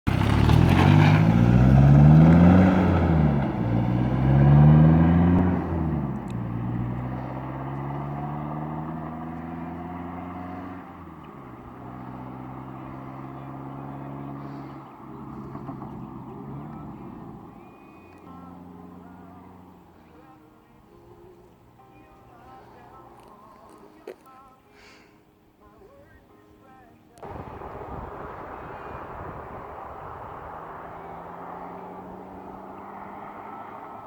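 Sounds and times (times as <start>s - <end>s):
truck engine accelerating: 0.0s - 20.2s, 27.2s - 34.0s.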